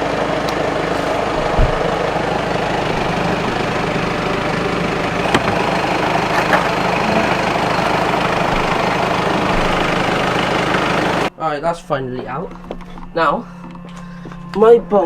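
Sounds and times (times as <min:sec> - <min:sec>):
diesel engine idling: 0:00.0 - 0:15.0
low thump: 0:01.5 - 0:02.0.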